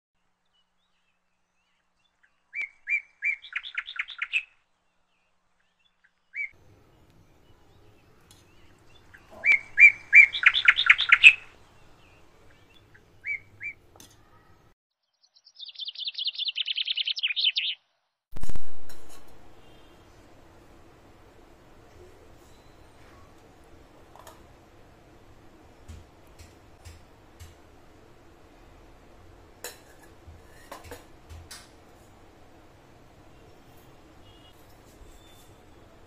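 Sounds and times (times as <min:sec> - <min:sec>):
bird chirping trill: 0:00.6 - 0:13.8, 0:14.9 - 0:18.0.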